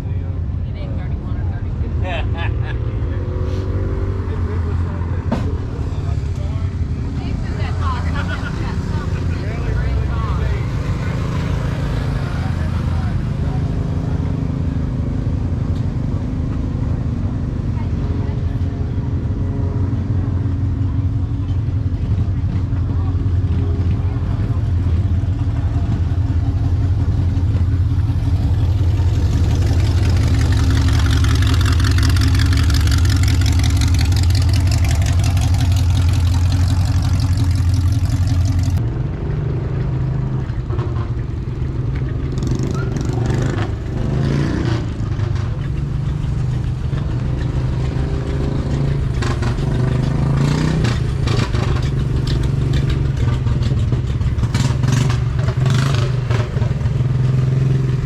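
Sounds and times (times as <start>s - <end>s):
vehicle engines humming: 0.0s - 58.0s.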